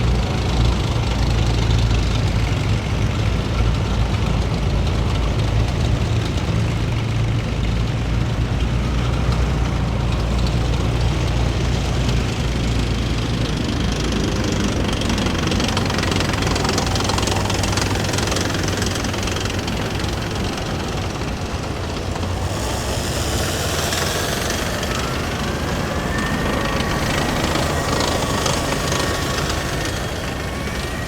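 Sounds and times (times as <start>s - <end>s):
heavy vehicle engines droning: 0.0s - 31.0s
higher-pitched engine noise: 4.0s - 31.0s.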